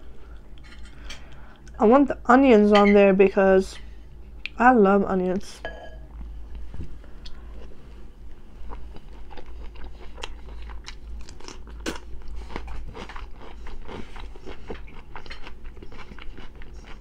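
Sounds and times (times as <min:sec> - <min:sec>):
person chewing crunchy food: 0:07.2 - 0:17.0.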